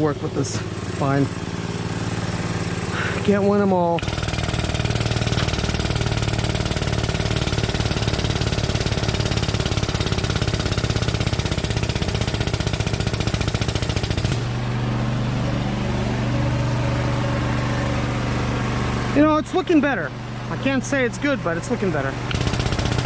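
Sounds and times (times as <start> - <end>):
fast mechanical rattle: 0.0 - 14.6, 21.8 - 23.0
engine idling: 0.0 - 23.0.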